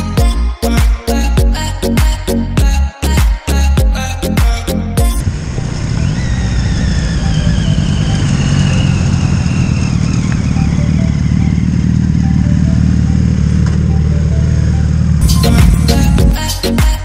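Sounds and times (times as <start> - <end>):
motorcycle engine running: 4.5 - 17.0
high whine: 5.0 - 17.0.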